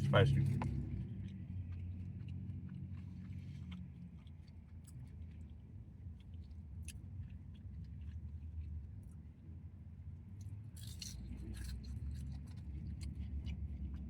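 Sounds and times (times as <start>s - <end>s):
person chewing: 1.7s - 5.5s, 10.8s - 14.0s.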